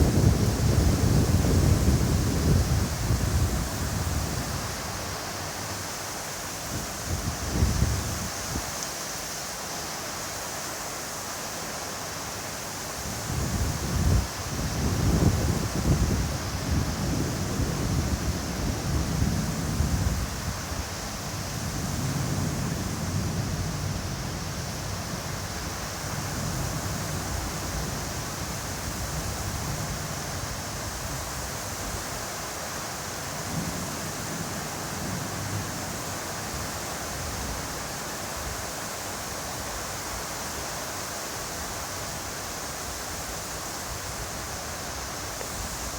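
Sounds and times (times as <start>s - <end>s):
wind buffeting microphone: 0.0s - 4.9s, 6.7s - 8.7s, 13.0s - 32.1s
heavy rain hiss: 0.0s - 45.9s.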